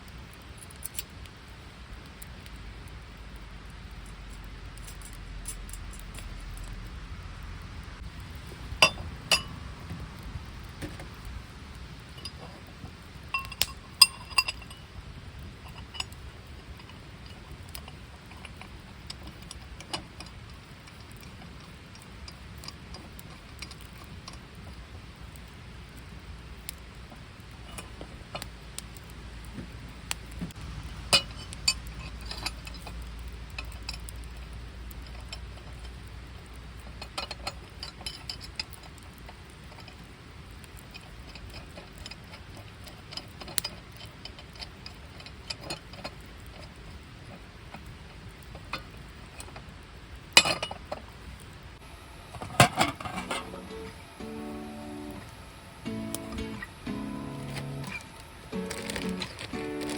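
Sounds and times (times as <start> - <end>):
low background noise: 0.0 - 59.9
camping gear clinking and knocking: 8.4 - 10.0, 12.1 - 15.0, 15.6 - 24.1, 52.4 - 59.9.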